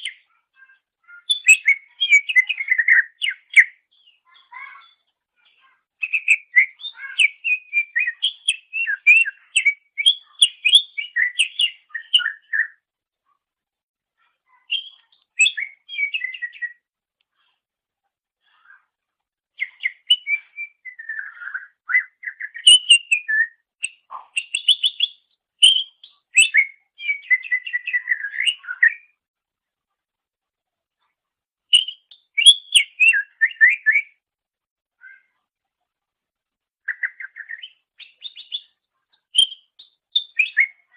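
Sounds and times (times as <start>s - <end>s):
bird chirping and whistling: 1.2s - 3.8s, 6.0s - 12.8s, 14.7s - 16.8s, 19.6s - 29.1s, 31.7s - 34.1s, 36.9s - 38.7s, 39.3s - 40.9s.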